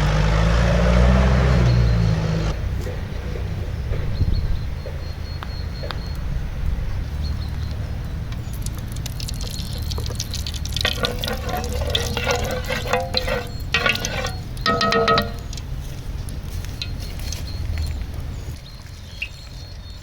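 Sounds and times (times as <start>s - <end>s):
liquid pouring into vessel: 8.5s - 15.7s.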